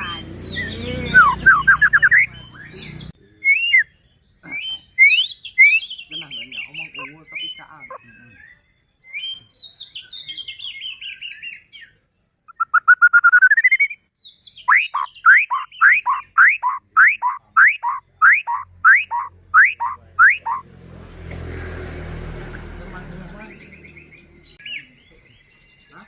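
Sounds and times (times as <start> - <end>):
bird singing whistles and trills: 0.0 - 20.6.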